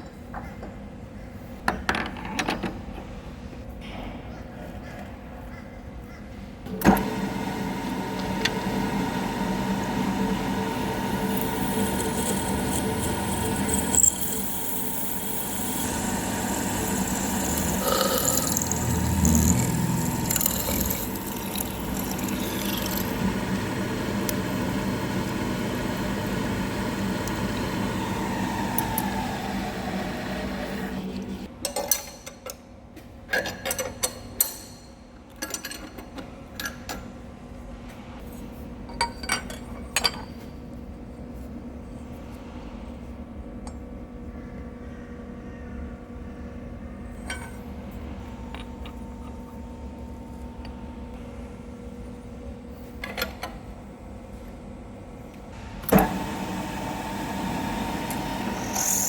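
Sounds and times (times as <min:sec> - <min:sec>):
milling machine cutting steel: 0:07.0 - 0:31.5, 0:55.9 - 0:59.0.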